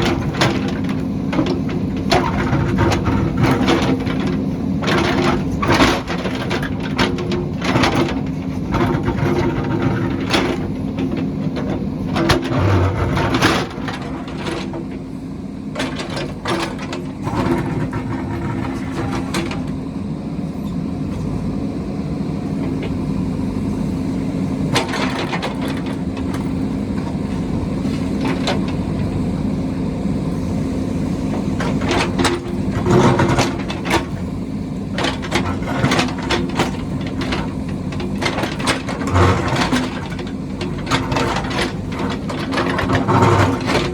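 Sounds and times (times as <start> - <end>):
heavy machine engine running: 0.0 - 43.9.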